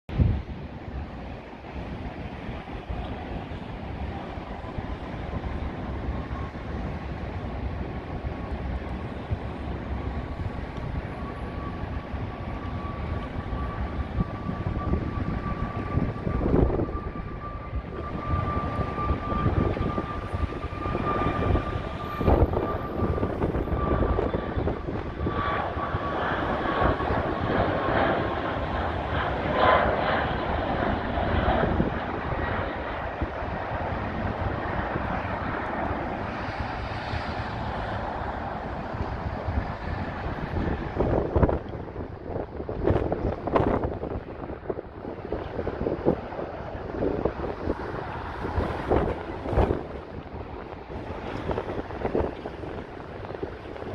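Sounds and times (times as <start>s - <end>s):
high fan whine: 0.1s - 53.9s
jet engine rumble: 0.1s - 53.9s.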